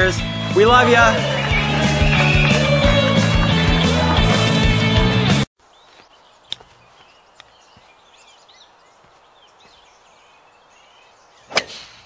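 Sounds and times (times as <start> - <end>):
loud music: 0.0 - 5.5
birds chirping: 5.6 - 12.0
outdoor background hiss: 5.6 - 12.0.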